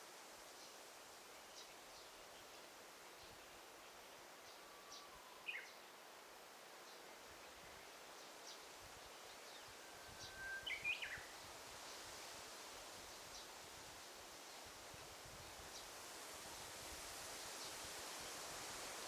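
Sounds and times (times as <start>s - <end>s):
faint steady hiss: 0.0s - 19.0s
forest birds calling: 3.2s - 5.9s, 6.8s - 11.5s
bird song with held whistle: 4.9s - 5.8s, 9.6s - 11.3s.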